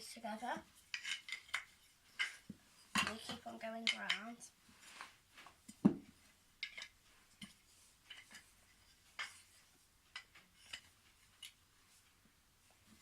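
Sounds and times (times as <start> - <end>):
wooden toy track pieces clacking: 0.8 - 4.3, 6.6 - 7.5, 10.1 - 11.6.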